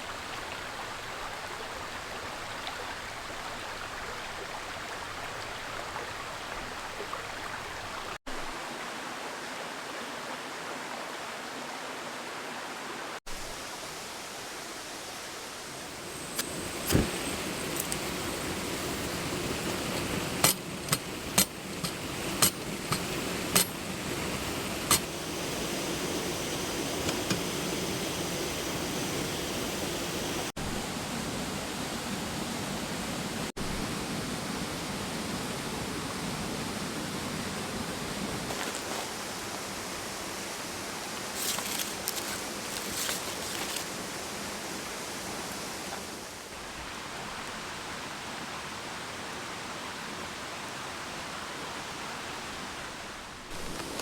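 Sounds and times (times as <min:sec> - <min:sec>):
mountain stream rushing: 0:00.0 - 0:54.0.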